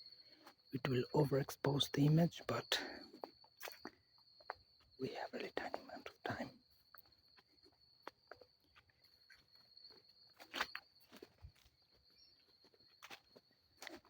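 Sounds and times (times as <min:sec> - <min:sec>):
footsteps on ground: 0:08.0 - 0:14.0.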